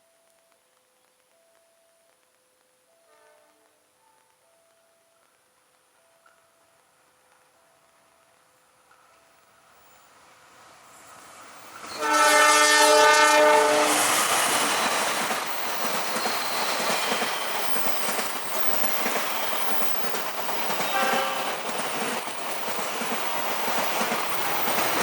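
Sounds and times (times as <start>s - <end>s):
train wheels rumbling and clattering: 8.5s - 25.0s
train horn blast: 11.9s - 14.2s, 20.8s - 21.6s.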